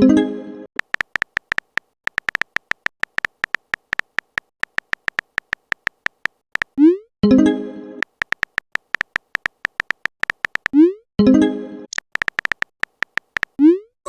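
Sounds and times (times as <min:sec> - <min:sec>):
phone keyboard typing clicks: 0:00.8 - 0:06.9, 0:08.0 - 0:10.8, 0:11.9 - 0:13.6.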